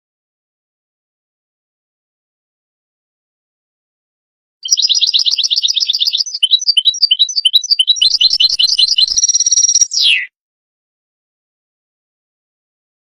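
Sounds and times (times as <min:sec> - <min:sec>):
goldfinch singing: 0:04.6 - 0:10.3.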